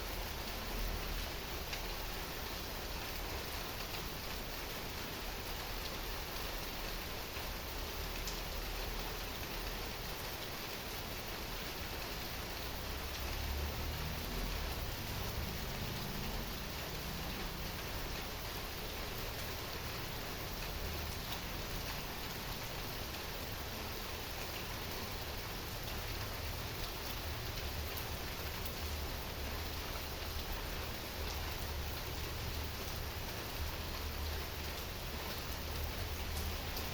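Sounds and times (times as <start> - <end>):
heavy rain hissing: 12.3 - 36.9.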